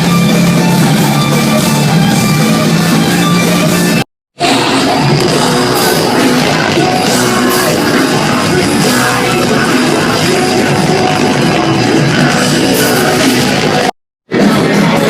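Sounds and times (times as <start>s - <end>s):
distorted guitars: 0.0s - 15.0s
drums: 0.0s - 15.0s
person singing: 4.4s - 15.0s.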